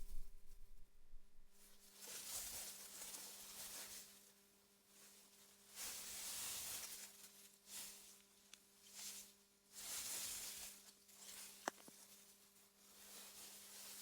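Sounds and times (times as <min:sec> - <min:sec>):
faint steady hum: 0:00.0 - 0:01.8.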